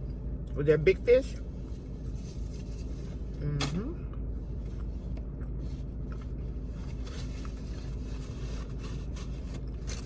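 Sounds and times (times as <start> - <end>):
low hum: 0.0 - 10.0
rustling: 6.7 - 10.0.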